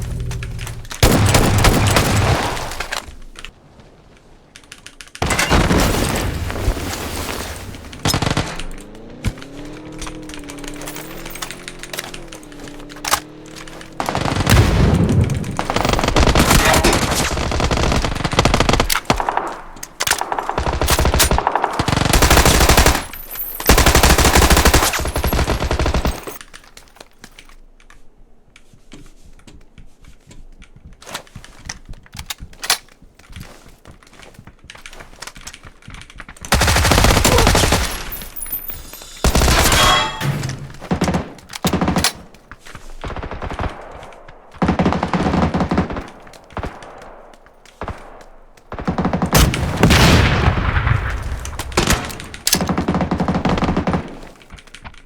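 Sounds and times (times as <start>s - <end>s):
automatic gunfire: 36.5s - 38.2s.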